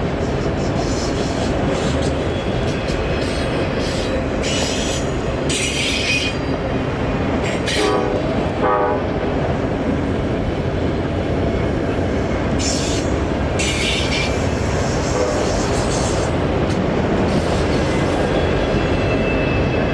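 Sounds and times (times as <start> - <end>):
freight train rumbling on rails: 0.0 - 19.9
short train horn notes: 7.7 - 9.1, 15.0 - 15.7.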